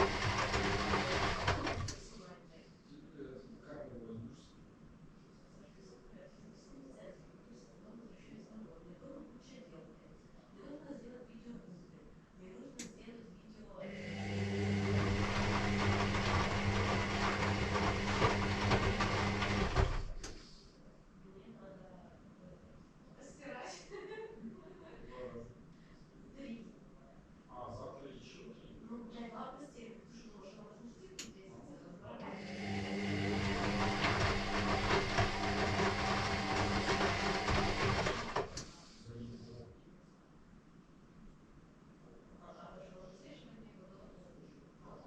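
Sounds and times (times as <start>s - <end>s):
drain pump humming: 0.0s - 2.2s, 13.8s - 20.4s, 32.2s - 39.0s
wet laundry tumbling: 0.0s - 2.2s, 14.2s - 20.2s.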